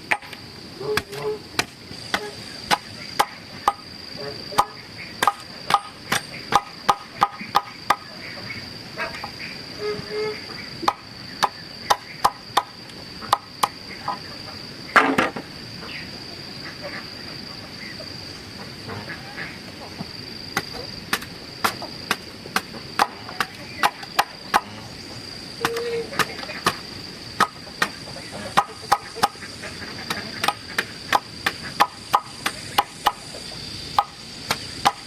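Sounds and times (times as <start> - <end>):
high insect buzz: 0.0 - 35.0
sharp strikes of a hand tool: 4.6 - 8.0.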